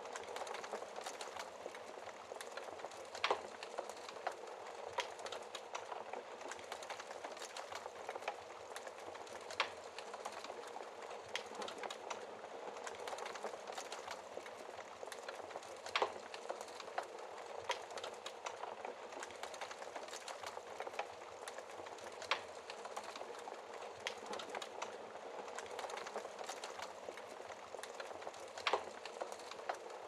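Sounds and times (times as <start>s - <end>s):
wood fire crackling in fireplace: 0.0s - 30.0s.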